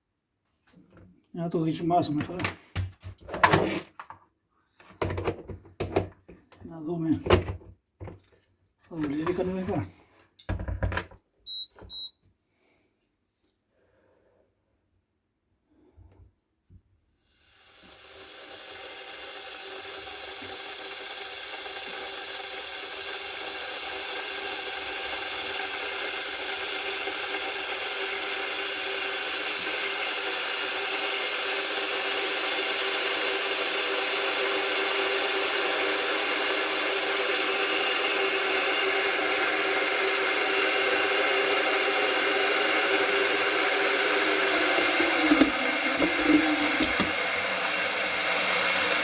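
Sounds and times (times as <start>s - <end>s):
electric kettle hissing: 1.5s - 3.0s, 8.9s - 10.2s, 17.2s - 49.0s.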